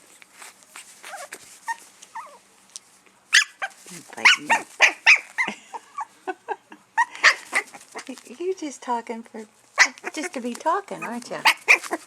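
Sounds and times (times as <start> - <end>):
puppy whining: 0.8 - 2.4, 3.4 - 6.4, 7.0 - 8.2, 9.8 - 12.0
puppy yapping: 1.0 - 2.4, 3.3 - 6.1, 7.0 - 8.1, 9.8 - 12.0.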